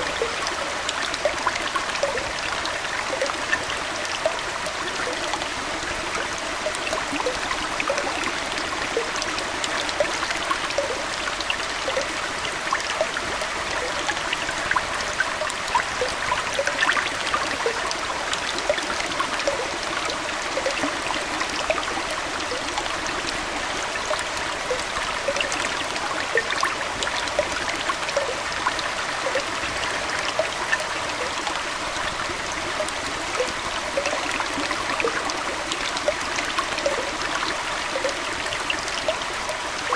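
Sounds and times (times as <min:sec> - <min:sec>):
aquarium water trickling: 0:00.0 - 0:39.9
small bubbling plops: 0:24.0 - 0:39.9.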